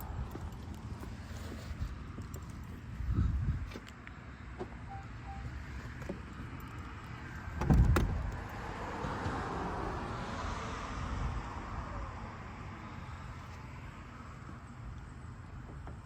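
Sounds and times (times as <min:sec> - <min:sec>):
latch clunk: 0:07.5 - 0:08.5.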